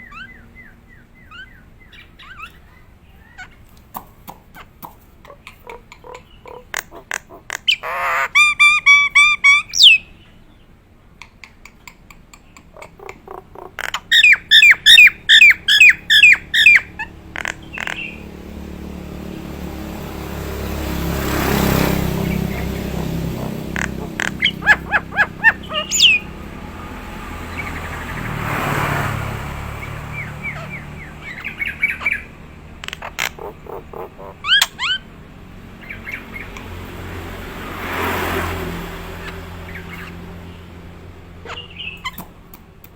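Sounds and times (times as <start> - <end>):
myna calling with whistled notes: 0.0 - 10.7, 11.5 - 18.4, 21.2 - 28.4, 29.7 - 35.1, 41.4 - 42.3.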